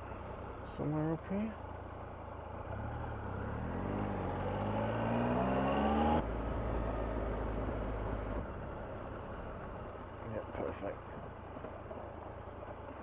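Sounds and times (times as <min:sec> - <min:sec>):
motorcycle engine accelerating: 0:02.6 - 0:08.4.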